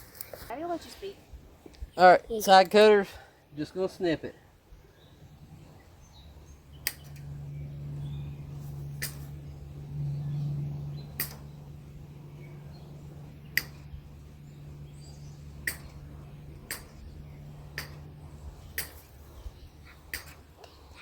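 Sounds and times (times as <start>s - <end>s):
steady low hum: 0.0s - 21.0s
side cutters snipping wire: 6.8s - 7.3s, 8.6s - 9.4s, 11.1s - 11.6s, 13.4s - 14.4s, 15.5s - 19.3s, 20.0s - 20.7s.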